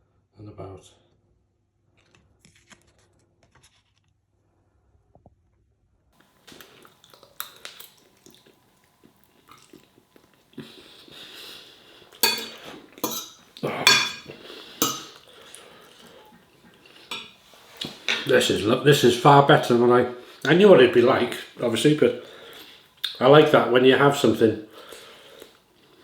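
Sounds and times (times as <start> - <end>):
cutlery clinking on a dish: 12.2 - 15.3, 17.0 - 18.3.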